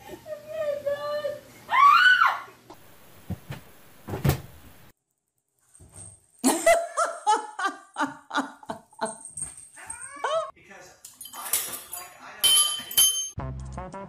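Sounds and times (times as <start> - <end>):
dull thumps: 2.7 - 4.9
person laughing: 6.4 - 9.2.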